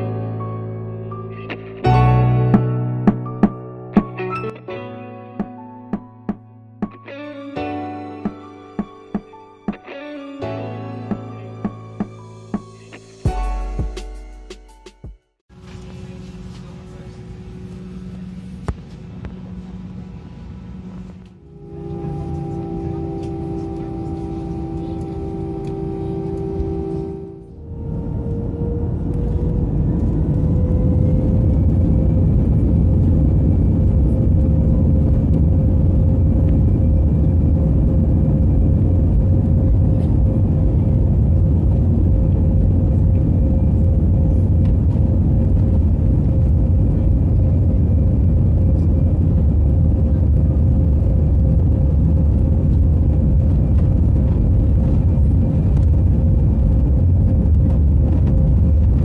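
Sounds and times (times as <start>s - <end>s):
deep engine rumble: 15.5s - 59.0s
jet engine whine: 15.5s - 59.0s.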